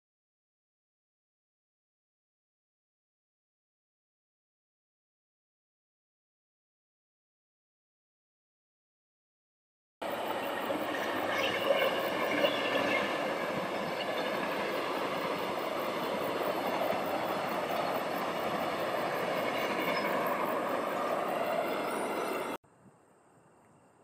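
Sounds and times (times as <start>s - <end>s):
train wheels rumbling on rails: 10.0s - 22.6s.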